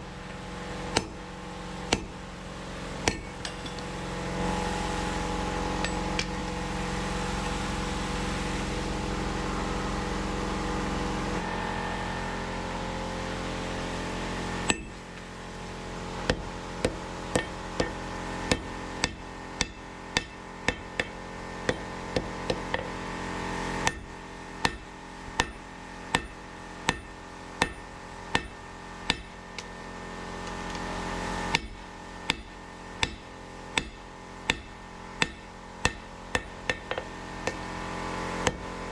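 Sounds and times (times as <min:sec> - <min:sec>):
steady machine hum: 0:00.0 - 0:38.9
hammer striking steel on anvil: 0:00.3 - 0:01.3, 0:01.9 - 0:02.2, 0:03.0 - 0:04.1, 0:05.8 - 0:06.6, 0:14.7 - 0:15.0, 0:16.3 - 0:22.9, 0:23.8 - 0:29.7, 0:31.5 - 0:37.7.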